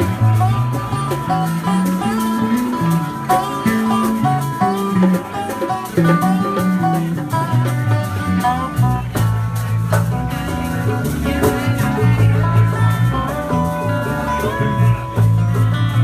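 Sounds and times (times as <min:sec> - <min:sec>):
bass notes: 0:00.0 - 0:16.0
drums with cymbals: 0:00.0 - 0:16.0
melodic guitar line: 0:00.0 - 0:16.0.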